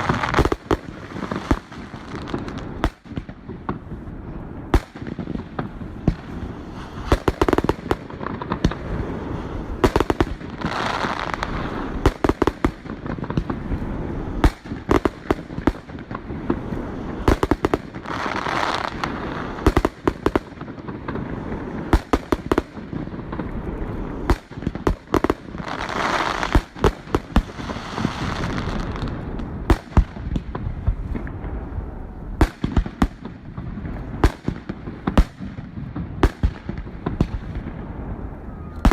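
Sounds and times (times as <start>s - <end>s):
dense firework crackling: 0.0s - 38.9s.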